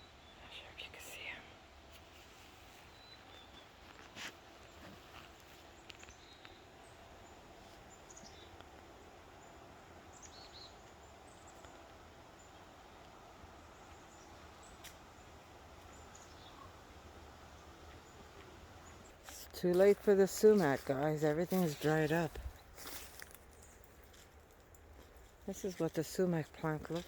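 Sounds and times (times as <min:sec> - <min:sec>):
faint bird chirps: 0:02.7 - 0:04.0, 0:05.7 - 0:12.8, 0:13.6 - 0:19.2.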